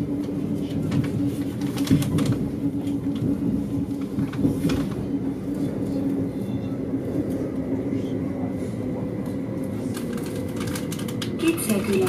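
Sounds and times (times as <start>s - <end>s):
train interior rumble and hum: 0.0s - 12.0s
wheels clicking on track: 9.9s - 12.0s.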